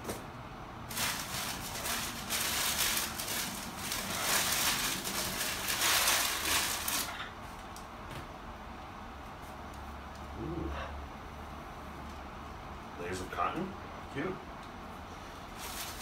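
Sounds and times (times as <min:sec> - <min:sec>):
paper packing rustling: 0:00.9 - 0:07.2, 0:15.6 - 0:16.0.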